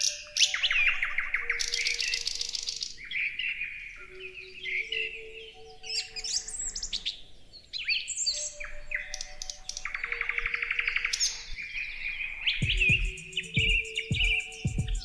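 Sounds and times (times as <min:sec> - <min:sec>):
songbirds chirping and whistling: 0:00.0 - 0:15.0
fast even bird trill: 0:12.6 - 0:15.0.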